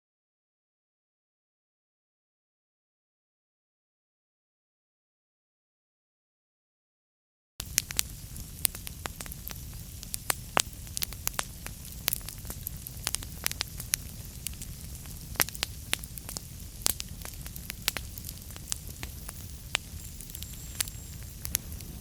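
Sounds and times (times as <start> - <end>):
wood fire crackling: 7.6 - 22.0.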